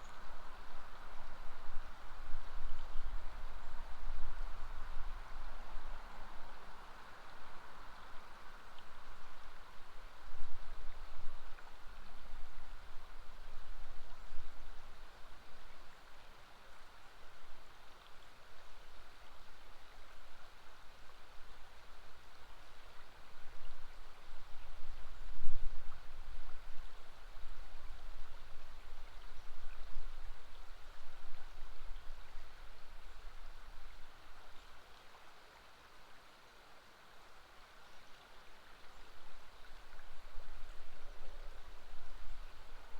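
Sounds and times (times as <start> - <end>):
river water rushing: 32.4 - 42.9.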